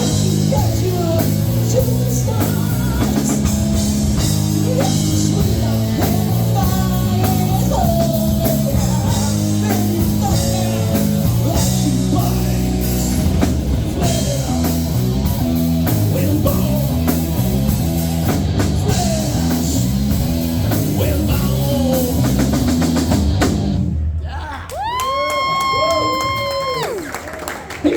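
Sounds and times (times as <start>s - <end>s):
person singing: 0.0s - 15.1s, 15.8s - 17.4s, 18.8s - 19.9s, 20.8s - 22.6s
electric guitar: 0.0s - 24.0s
drum kit beat: 0.0s - 25.0s
bass guitar: 0.0s - 26.9s.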